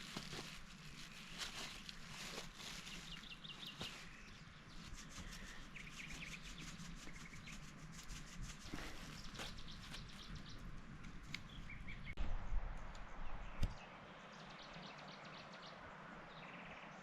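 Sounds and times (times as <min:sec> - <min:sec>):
scraping and rubbing noises: 0:00.0 - 0:10.2
small birds chirping: 0:00.1 - 0:12.2.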